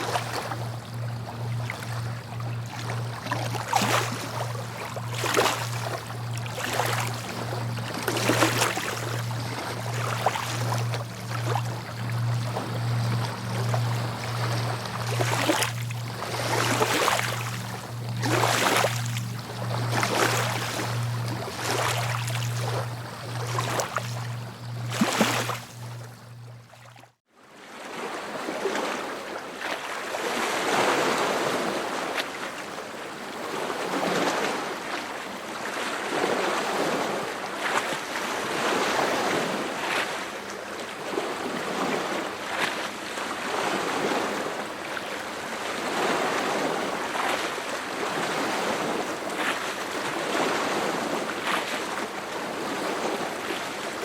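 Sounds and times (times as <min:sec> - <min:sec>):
low steady hum: 0:00.0 - 0:27.1.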